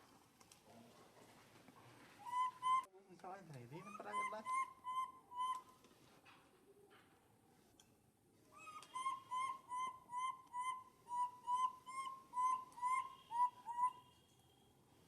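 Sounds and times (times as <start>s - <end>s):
short whistled animal calls: 8.6s - 14.7s.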